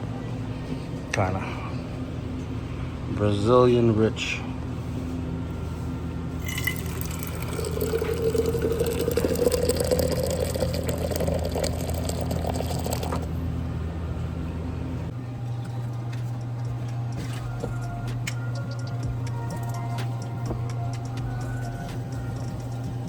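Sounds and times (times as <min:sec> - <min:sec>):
liquid pouring into cup: 0:06.4 - 0:13.3.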